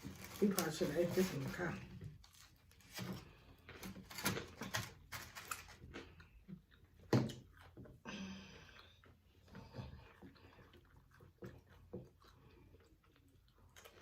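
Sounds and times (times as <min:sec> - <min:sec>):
food packaging clicks and rustles: 0:00.0 - 0:07.8.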